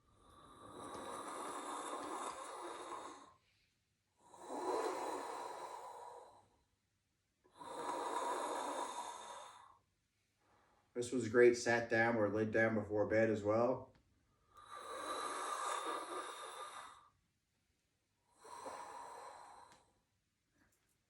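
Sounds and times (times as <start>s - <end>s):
person breathing through throat: 0.0s - 3.5s, 4.3s - 6.5s, 7.6s - 9.8s, 14.6s - 17.1s, 18.4s - 20.0s.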